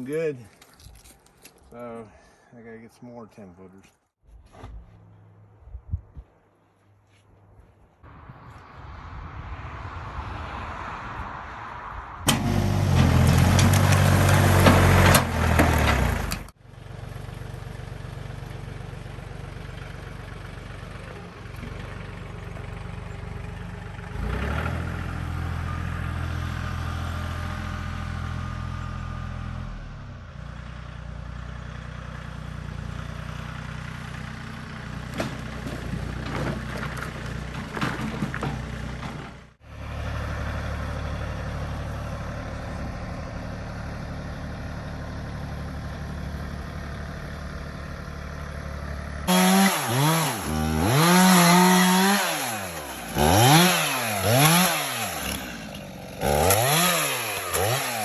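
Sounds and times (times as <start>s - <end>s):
engine running: 12.3s - 58.0s.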